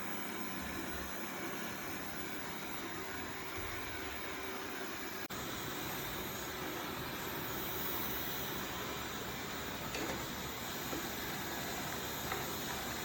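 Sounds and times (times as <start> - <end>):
robot vacuum whirring: 9.4 - 13.0.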